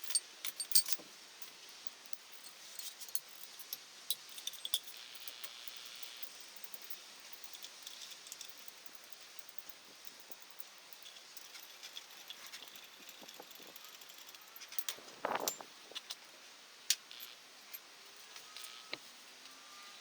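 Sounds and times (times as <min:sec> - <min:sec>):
metallic tool clicks and clinks: 0:00.0 - 0:16.2
faint steady hiss: 0:00.0 - 0:20.0
metal rattling clatter: 0:06.7 - 0:15.6.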